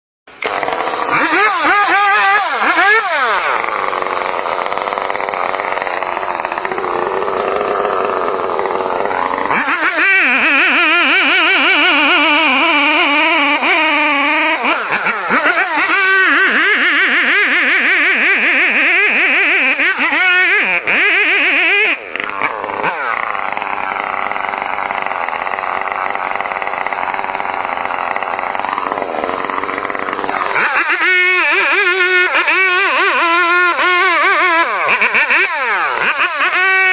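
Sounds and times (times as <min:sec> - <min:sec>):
chainsaw cutting: 0:00.3 - 0:36.9.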